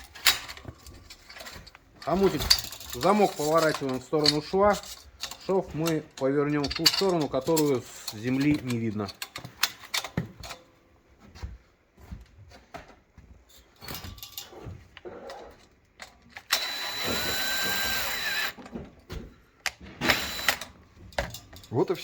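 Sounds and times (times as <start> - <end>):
light metal clicks and knocks: 0.0 - 10.7, 20.6 - 22.0
cordless drill driving screw: 16.4 - 18.6, 20.0 - 20.7.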